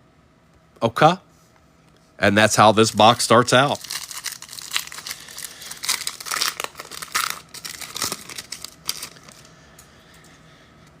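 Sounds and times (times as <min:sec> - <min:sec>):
foil wrapper crinkling: 0:03.6 - 0:09.5.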